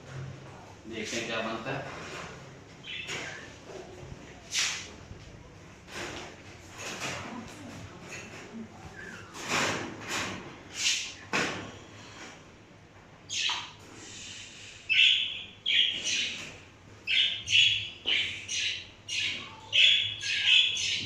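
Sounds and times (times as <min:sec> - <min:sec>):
parrots squawking: 0:02.8 - 0:03.5, 0:13.3 - 0:13.8, 0:14.9 - 0:21.0.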